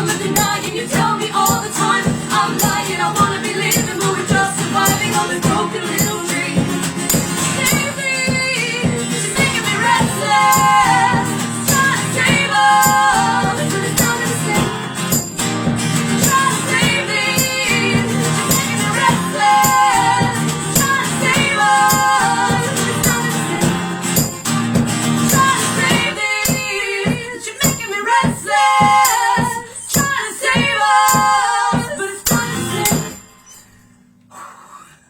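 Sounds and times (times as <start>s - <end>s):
person singing: 0.0s - 15.3s, 16.2s - 23.9s
strummed acoustic guitar: 0.0s - 34.3s.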